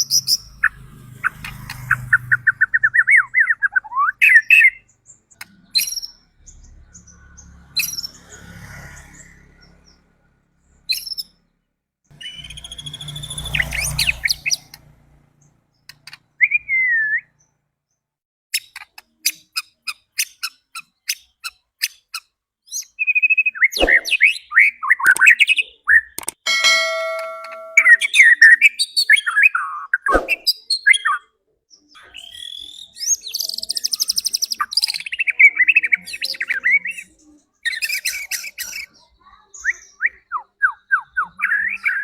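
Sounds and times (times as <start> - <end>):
bird singing whistles and clicks: 12.2 - 14.7, 22.7 - 28.1.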